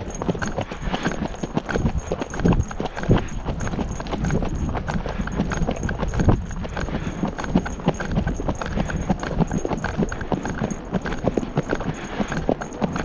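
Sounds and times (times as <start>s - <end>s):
horse hooves clip-clopping: 0.0s - 13.0s.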